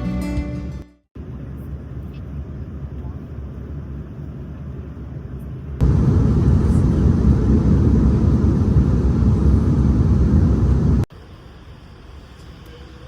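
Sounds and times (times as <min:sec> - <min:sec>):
jet engines rumbling: 0:01.2 - 0:11.1.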